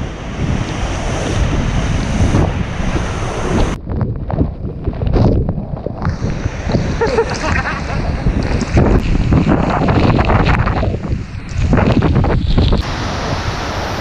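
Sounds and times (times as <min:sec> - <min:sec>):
wind buffeting microphone: 0:00.0 - 0:14.0
waterfall rushing: 0:12.8 - 0:14.0.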